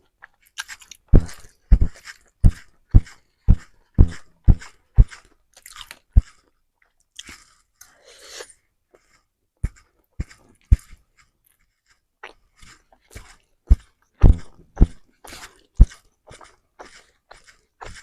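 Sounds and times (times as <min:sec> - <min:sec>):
close chewing of noodles: 0:00.0 - 0:18.0.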